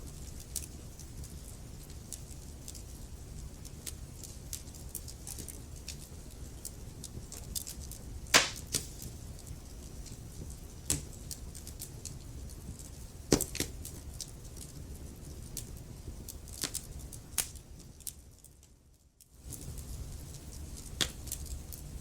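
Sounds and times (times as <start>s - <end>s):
fire rumbling: 0.2s - 18.4s, 19.4s - 22.0s
logs crackling and popping: 3.5s - 18.6s, 19.5s - 21.9s.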